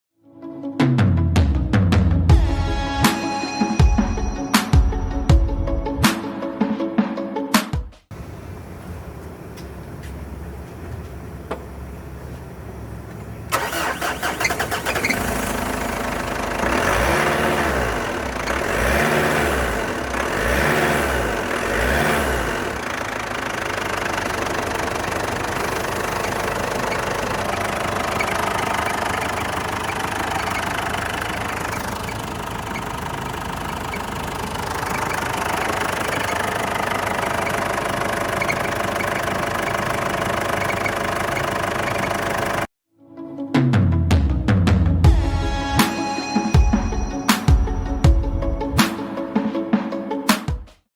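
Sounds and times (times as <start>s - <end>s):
car engine starting and revving: 8.1s - 42.7s.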